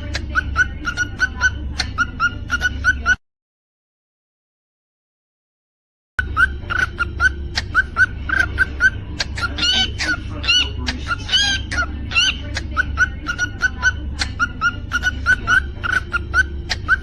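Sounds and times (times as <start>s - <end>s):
cockatiel chirping: 0.0s - 3.2s, 6.2s - 17.0s
cockatiel whistled notes: 6.2s - 10.2s, 14.4s - 17.0s.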